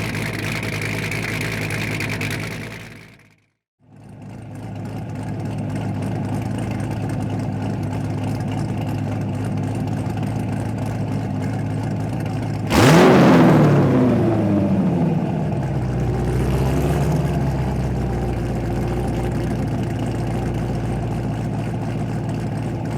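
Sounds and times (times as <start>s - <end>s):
car engine idling: 0.0s - 22.9s
car engine revving hard: 12.7s - 21.2s.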